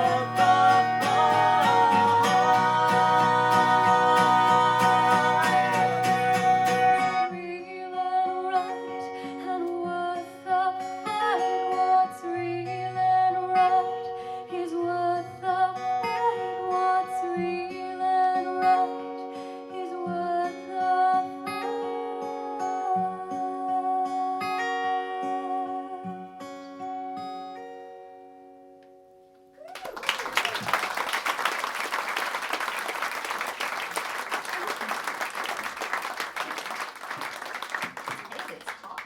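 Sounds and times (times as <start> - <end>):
acoustic guitar playing: 0.0 - 29.3.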